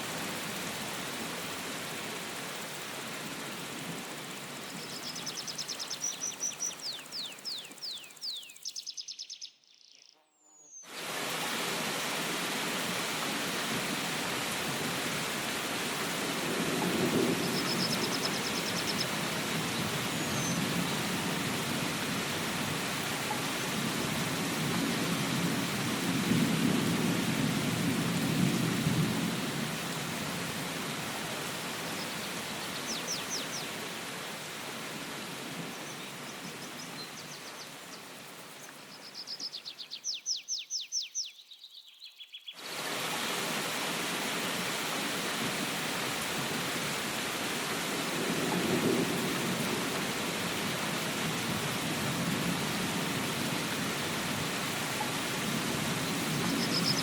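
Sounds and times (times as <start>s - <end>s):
heavy rain: 0.0s - 7.9s, 10.9s - 38.5s, 42.6s - 57.0s
thunder rumbling: 16.1s - 18.3s, 23.6s - 30.6s, 47.9s - 54.6s.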